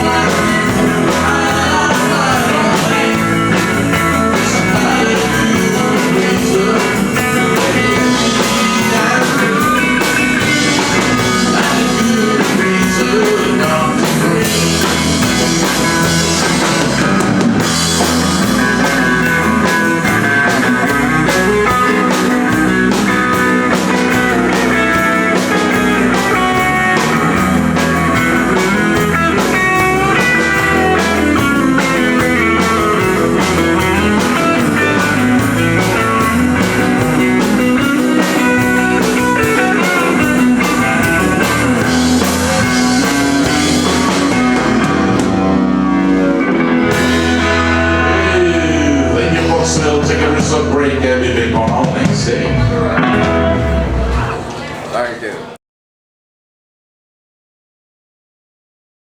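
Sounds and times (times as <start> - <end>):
drums keeping a steady beat: 0.0 - 55.0
guitar: 0.0 - 55.6.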